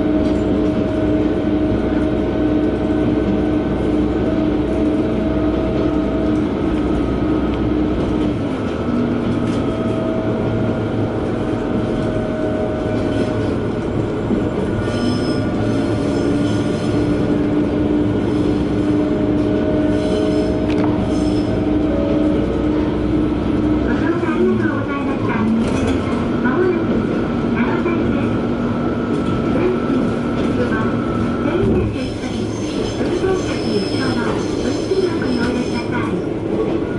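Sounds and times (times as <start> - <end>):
railcar engine and wheel rumble: 0.0 - 36.9
faint high wheel squeals: 14.8 - 17.0, 19.9 - 21.6, 32.0 - 35.9.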